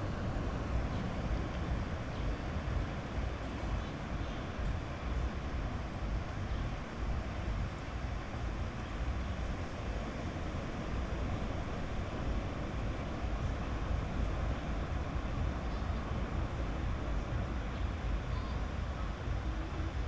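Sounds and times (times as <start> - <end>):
low rumble: 0.0 - 20.0
sea waves washing onto beach: 0.0 - 20.0.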